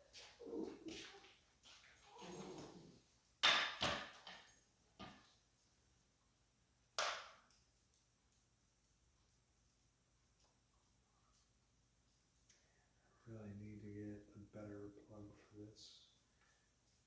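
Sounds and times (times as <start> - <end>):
soft rustle: 0.0 - 3.4
sharp knocks of hard objects: 3.4 - 4.4, 7.0 - 7.4.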